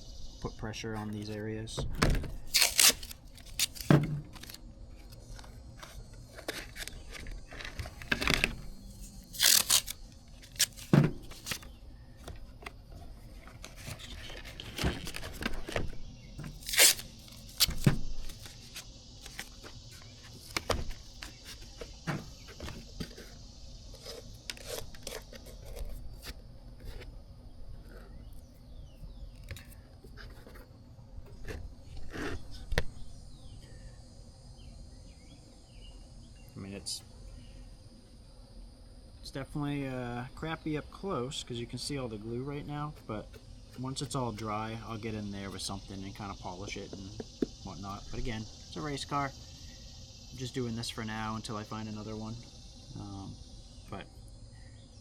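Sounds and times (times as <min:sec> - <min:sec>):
knocks and rustles of handling: 0:01.0 - 0:23.4
adhesive tape tearing: 0:02.4 - 0:04.6, 0:08.9 - 0:11.7, 0:16.4 - 0:19.6, 0:24.0 - 0:25.9.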